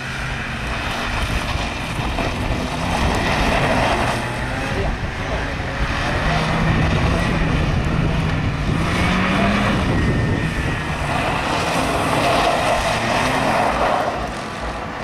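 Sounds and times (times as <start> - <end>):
car engine revving hard: 0.0 - 15.0.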